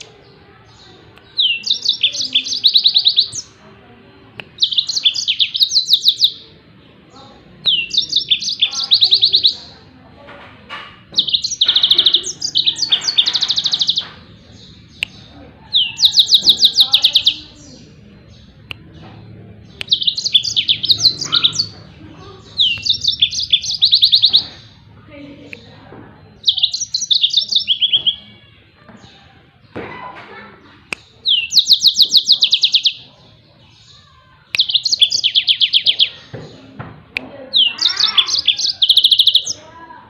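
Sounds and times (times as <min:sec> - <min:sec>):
canary trilling song: 0:00.0 - 0:40.0.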